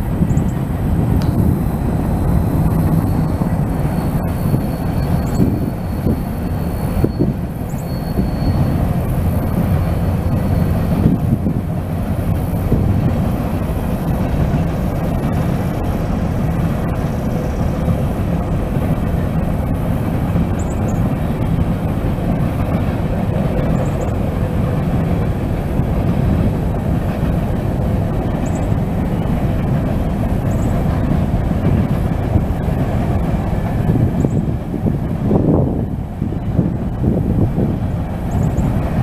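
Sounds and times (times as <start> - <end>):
train rumbling past: 0.0 - 39.0
high wheel squeaks: 1.4 - 11.6.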